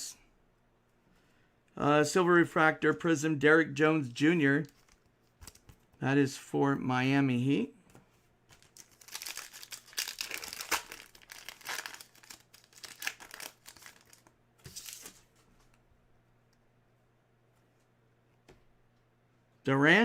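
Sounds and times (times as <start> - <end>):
plastic packaging crinkling: 8.5 - 15.2.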